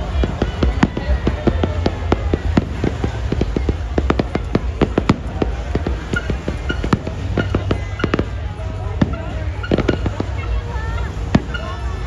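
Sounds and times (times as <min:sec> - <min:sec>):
fireworks banging: 0:00.0 - 0:12.0.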